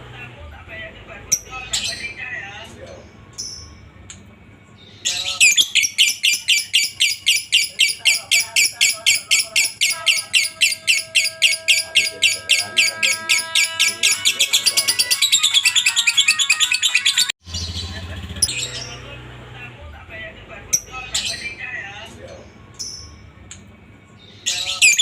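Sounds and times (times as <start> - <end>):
lovebird chattering: 4.9 - 19.0, 24.3 - 25.0.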